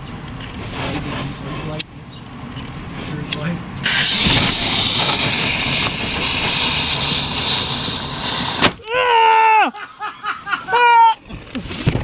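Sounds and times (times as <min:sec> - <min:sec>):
firework hissing: 0:03.8 - 0:08.8.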